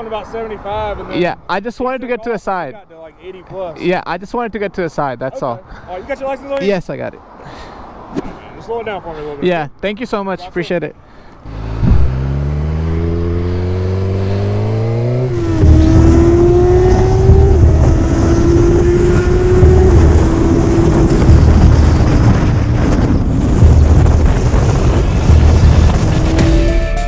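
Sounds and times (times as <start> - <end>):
motorcycle engine accelerating: 11.4 - 26.5
motorcycle engine at speed: 11.5 - 26.4
wind noise: 11.5 - 26.4.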